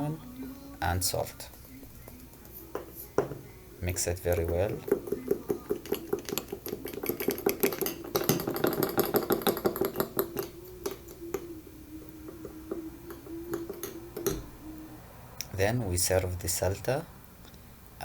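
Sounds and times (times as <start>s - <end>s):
beaters clattering against bowl: 1.3s - 14.8s.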